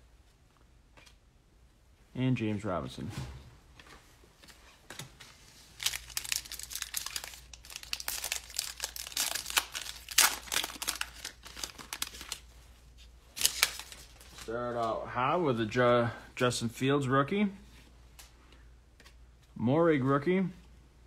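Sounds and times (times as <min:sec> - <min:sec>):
wrapper tearing and crinkling: 0:05.7 - 0:12.5, 0:13.4 - 0:14.5.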